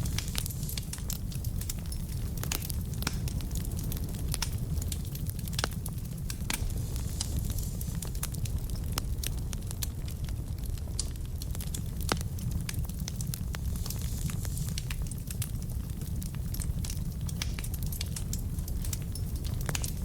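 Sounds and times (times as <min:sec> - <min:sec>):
burning logs crackling: 0:00.0 - 0:20.0
fire popping: 0:00.0 - 0:20.0
low rumble of fire: 0:00.0 - 0:20.0.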